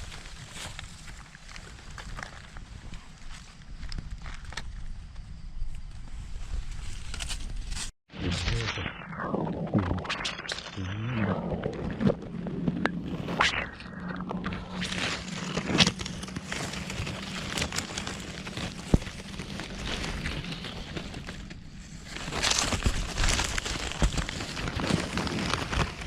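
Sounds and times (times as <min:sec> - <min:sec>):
dry leaves and twigs crackling: 0:00.0 - 0:07.9, 0:13.8 - 0:26.0.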